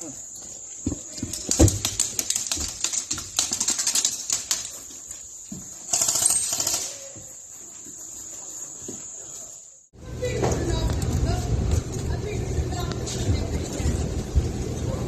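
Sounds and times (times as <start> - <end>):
airsoft guns firing: 5.9 - 7.0.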